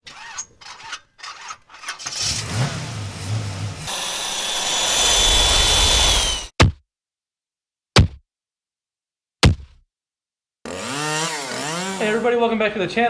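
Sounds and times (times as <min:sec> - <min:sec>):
motor cranking and running with whine: 0:01.3 - 0:06.5, 0:10.7 - 0:12.4.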